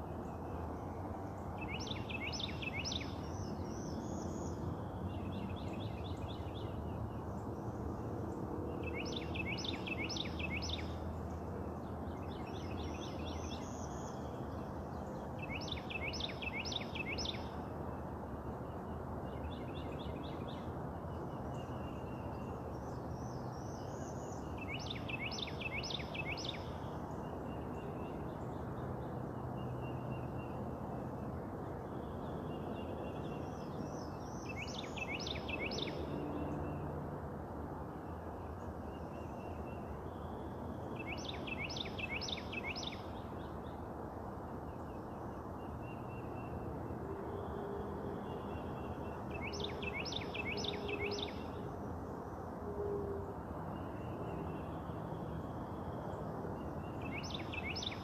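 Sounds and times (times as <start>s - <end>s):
songbird singing sweeping notes: 1.6s - 7.2s, 8.8s - 11.0s, 12.2s - 17.6s, 19.4s - 28.2s, 33.0s - 36.7s, 38.9s - 43.5s, 48.4s - 51.6s, 56.6s - 58.0s.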